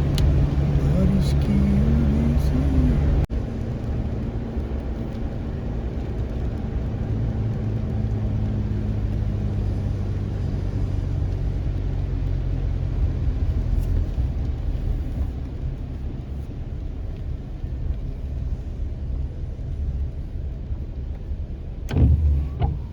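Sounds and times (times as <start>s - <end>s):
road vehicle rumble: 0.0s - 22.9s.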